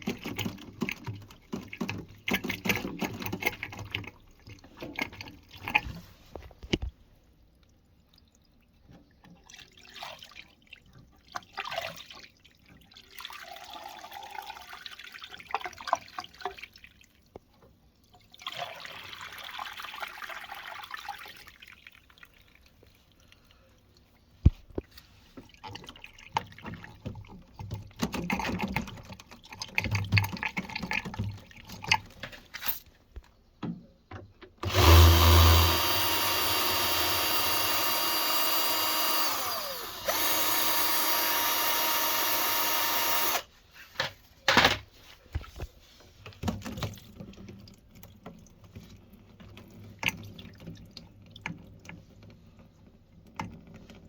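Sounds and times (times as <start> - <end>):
water splashing and trickling: 0.0 - 33.1, 45.8 - 54.0
electric motor humming and whining: 34.6 - 43.4.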